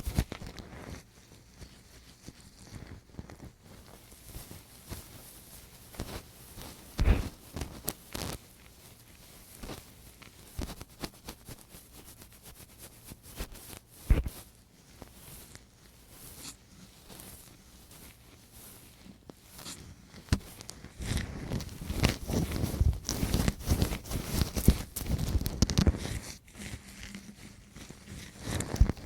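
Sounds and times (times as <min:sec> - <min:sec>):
crackling scratches and clicks: 0:00.0 - 0:29.0
tool scraping at microphone: 0:14.0 - 0:14.4
muffled thumps: 0:14.1 - 0:14.4.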